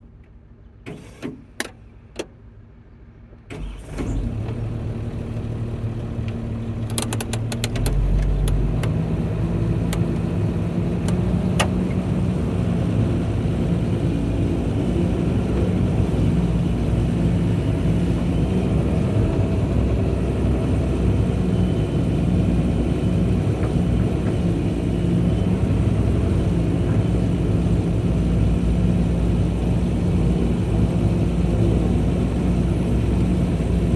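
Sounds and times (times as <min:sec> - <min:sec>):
excavator engine running: 0:03.4 - 0:33.9
clicks: 0:06.2 - 0:09.0.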